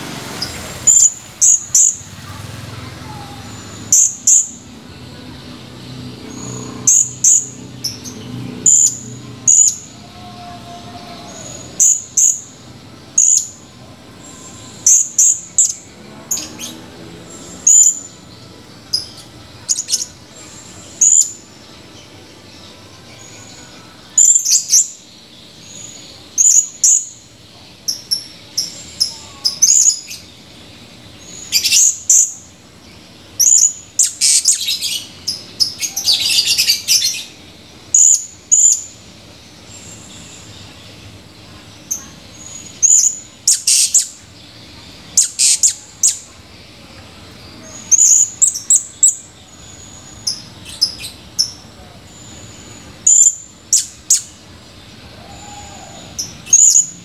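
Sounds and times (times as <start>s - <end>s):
parrot chirping shrilly: 33.4s - 37.2s, 42.8s - 44.1s, 45.2s - 46.2s
rapid parrot twittering: 33.4s - 38.9s, 41.9s - 44.2s, 45.1s - 46.3s, 53.0s - 54.4s.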